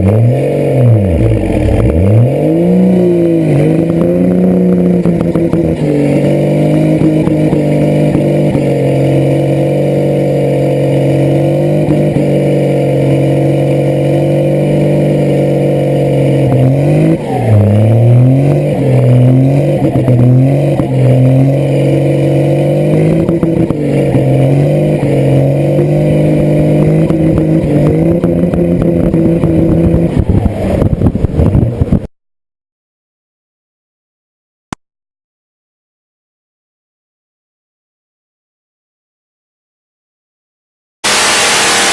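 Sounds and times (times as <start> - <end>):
engine running and revving: 0.0 - 32.1, 41.0 - 41.9.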